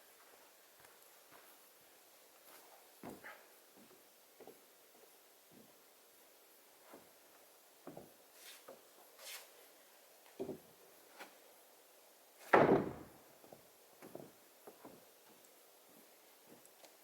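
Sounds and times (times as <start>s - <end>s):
loud wooden thump: 12.5s - 13.2s.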